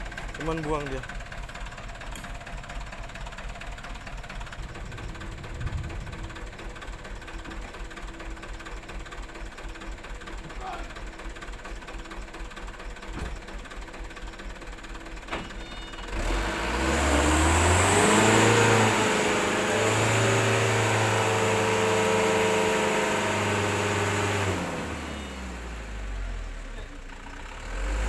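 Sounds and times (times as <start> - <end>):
diesel truck engine revving: 2.1 - 8.7, 16.0 - 26.8, 27.4 - 28.0.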